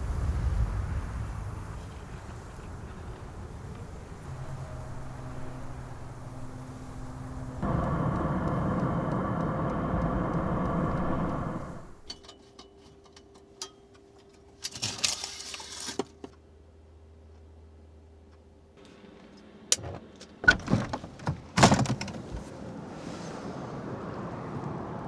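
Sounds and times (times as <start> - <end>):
steady ambient hiss: 0.0 - 12.1
faint steady hum: 1.1 - 12.2.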